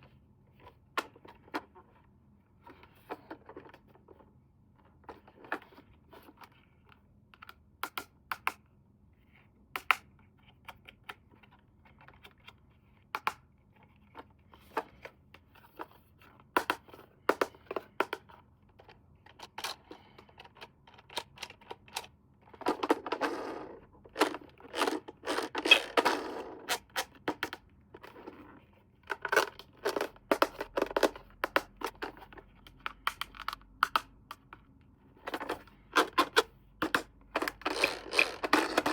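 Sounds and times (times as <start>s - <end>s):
packaging clicks and knocks: 35.3s - 38.9s.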